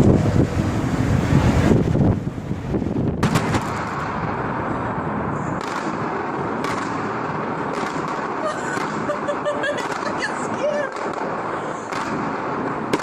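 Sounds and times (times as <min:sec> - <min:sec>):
steady rush of noise: 0:00.0 - 0:13.0.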